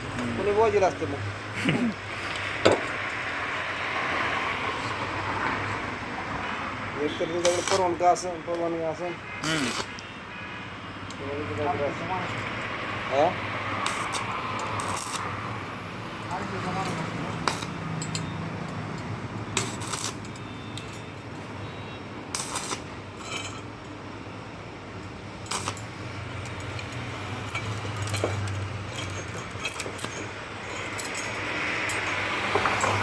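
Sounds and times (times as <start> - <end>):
light metal clinks: 13.8 - 15.2, 16.2 - 21.5, 22.3 - 24.0, 25.0 - 33.0.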